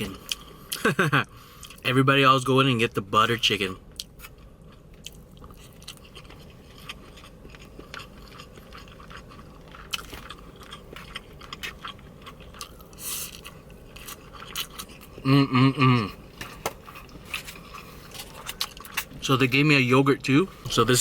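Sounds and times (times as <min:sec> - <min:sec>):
chewing mouth sounds: 0:04.0 - 0:15.2.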